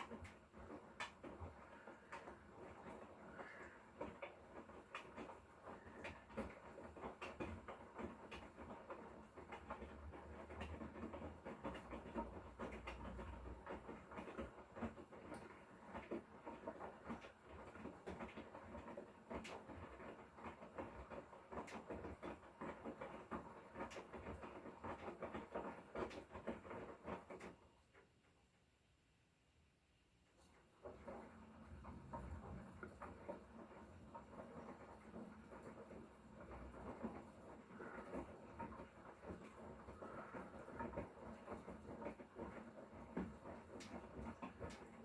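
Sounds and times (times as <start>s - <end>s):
washing machine drum sloshing: 30.4s - 45.0s.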